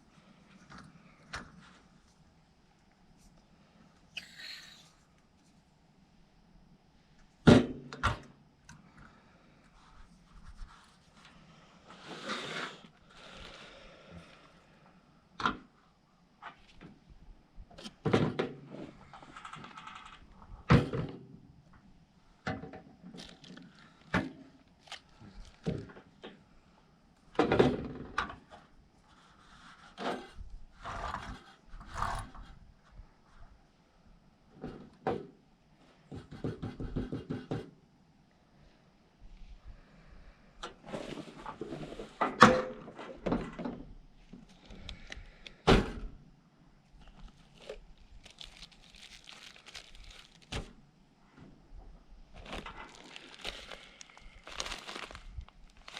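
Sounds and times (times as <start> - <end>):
rustling: 46.9 - 51.4, 52.3 - 55.9.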